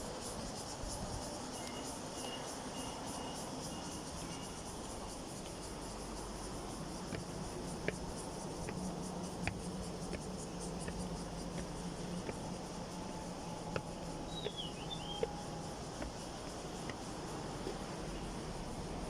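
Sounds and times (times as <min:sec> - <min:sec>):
outdoor background noise: 0:00.0 - 0:19.0
high wavering chirp: 0:14.2 - 0:15.6.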